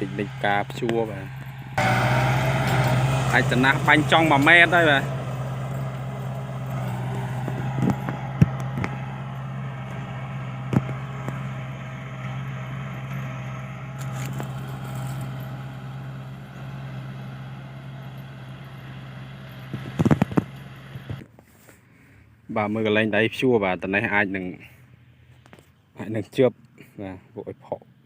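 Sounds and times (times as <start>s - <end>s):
tractor diesel engine running: 0.0s - 21.2s.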